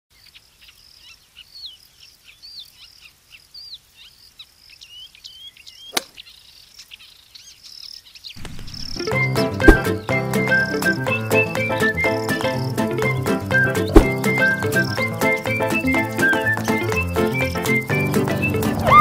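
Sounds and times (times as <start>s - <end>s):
birds chirping and calling: 0.2s - 18.8s
golf club striking ball: 5.9s - 6.2s, 8.4s - 9.9s, 13.9s - 14.2s.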